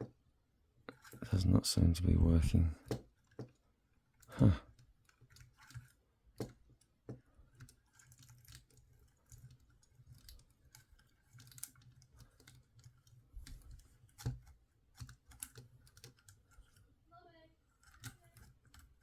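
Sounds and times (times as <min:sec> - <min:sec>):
plastic toy parts clicking: 0:05.0 - 0:16.8, 0:17.6 - 0:19.0.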